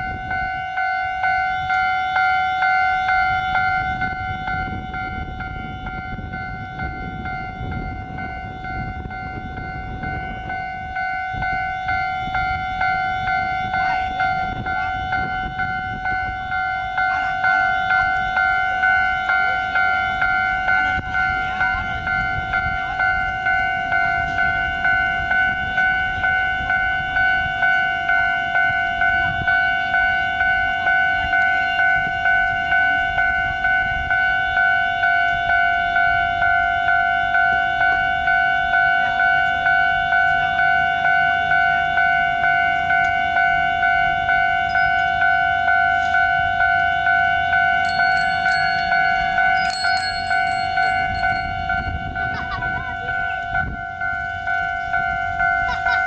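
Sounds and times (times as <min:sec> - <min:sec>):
level crossing bell ringing: 0:44.7 - 0:46.8, 0:47.6 - 0:52.2.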